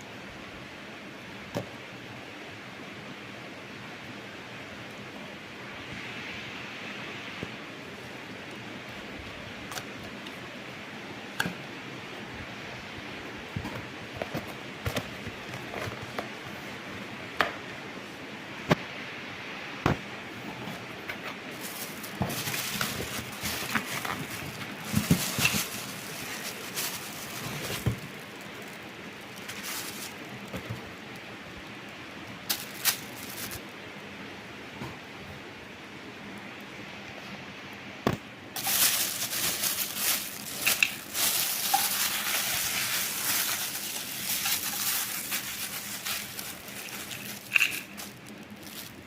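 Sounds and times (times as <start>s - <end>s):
rustling: 20.4s - 31.3s, 32.4s - 33.7s, 38.6s - 49.0s.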